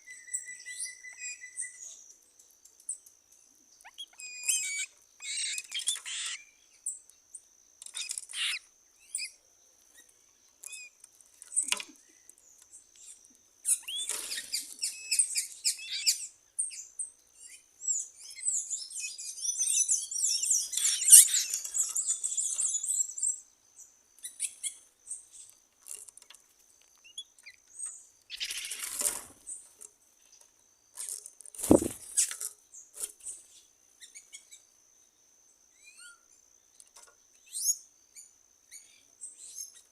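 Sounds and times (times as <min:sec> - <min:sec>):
wild birds chirping: 0:03.6 - 0:07.4, 0:27.0 - 0:29.7, 0:31.6 - 0:32.9
brief low thud: 0:31.6 - 0:32.0.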